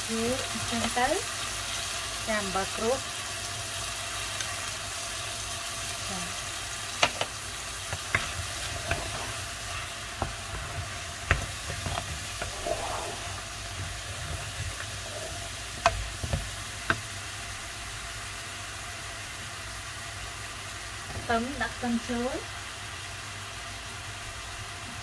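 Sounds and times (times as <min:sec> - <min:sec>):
food sizzling in a frying pan: 0:00.0 - 0:25.0
wooden spatula scraping a pan: 0:07.9 - 0:17.0.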